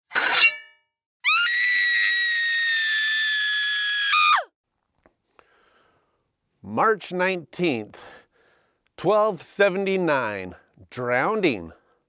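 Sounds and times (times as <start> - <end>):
high-pitched scream: 1.2 - 4.5.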